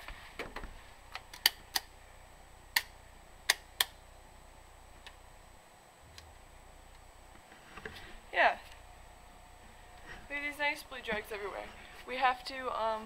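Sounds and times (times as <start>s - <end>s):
light switch clicks: 2.7s - 4.0s.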